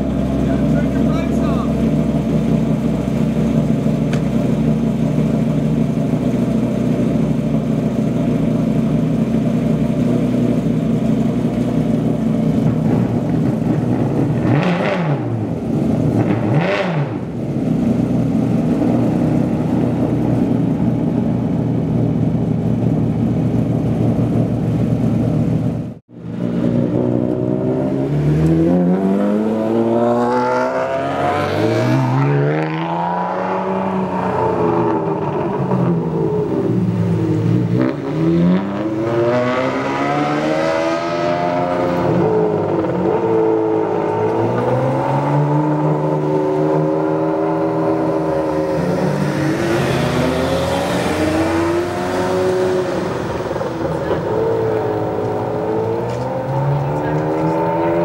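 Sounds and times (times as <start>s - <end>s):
sports car engines idling: 0.0s - 14.6s, 15.3s - 16.6s, 17.2s - 27.7s, 34.5s - 38.2s, 51.3s - 58.0s
car accelerating away: 0.0s - 22.0s, 26.3s - 58.0s
engine revving: 12.6s - 17.4s, 26.4s - 58.0s.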